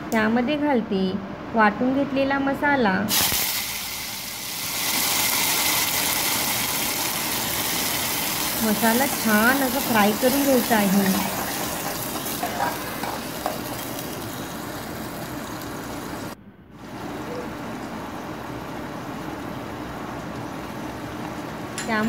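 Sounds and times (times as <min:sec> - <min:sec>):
paste sizzling in hot oil: 0:03.1 - 0:16.4.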